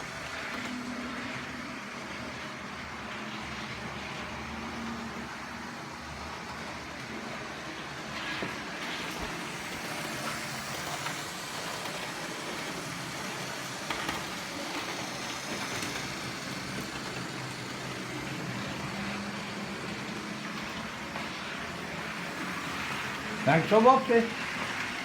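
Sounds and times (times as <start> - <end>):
small electric motors whirring: 8.5 - 25.0.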